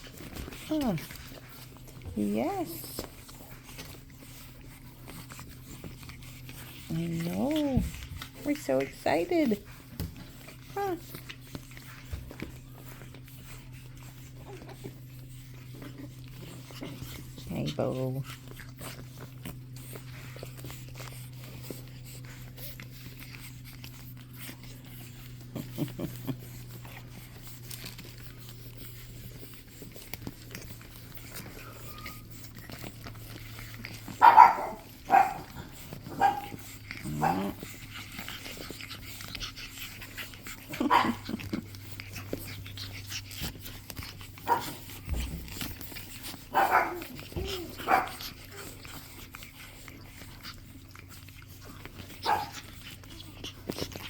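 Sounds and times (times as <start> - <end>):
puppies barking: 31.2 - 54.0.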